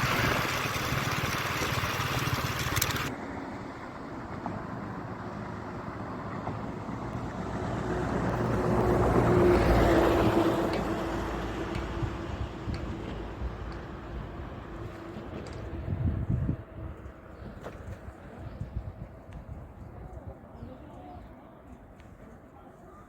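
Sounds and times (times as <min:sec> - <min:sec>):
motor vehicle passing: 0:00.0 - 0:03.2.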